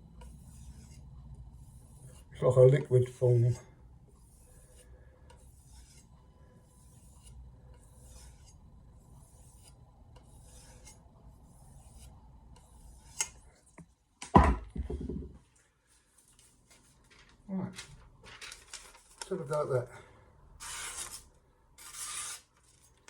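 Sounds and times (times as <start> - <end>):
loud knock: 14.3 - 15.4.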